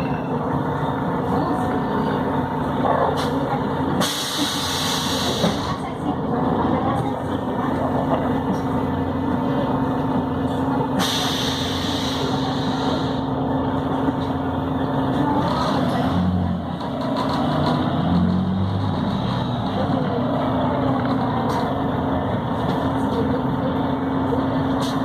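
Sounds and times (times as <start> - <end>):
bus diesel engine running: 0.0 - 25.0
air hissing: 4.0 - 5.7, 11.0 - 13.2.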